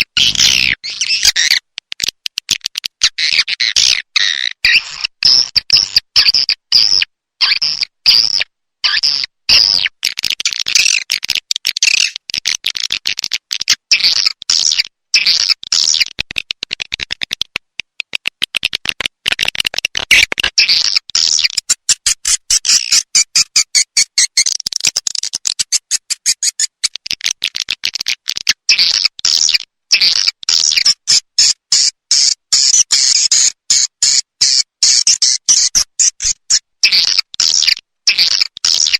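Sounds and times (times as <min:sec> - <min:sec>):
swiftlet clicking chirps: 0:19.8 - 0:27.7, 0:29.3 - 0:38.9.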